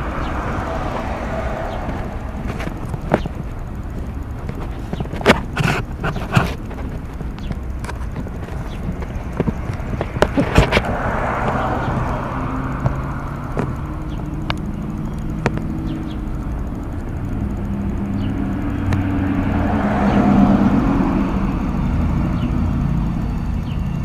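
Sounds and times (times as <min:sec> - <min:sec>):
train rumbling past: 0:00.0 - 0:05.0, 0:08.2 - 0:24.0
wheel clicks and knocks: 0:00.0 - 0:24.0.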